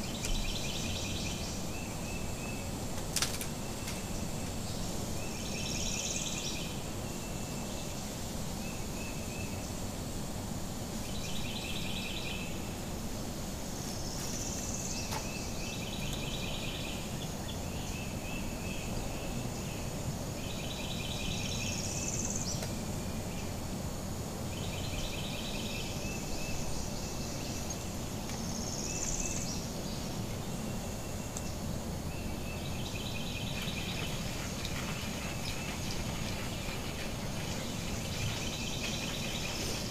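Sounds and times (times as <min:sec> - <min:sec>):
low background noise: 0:00.0 - 0:39.9.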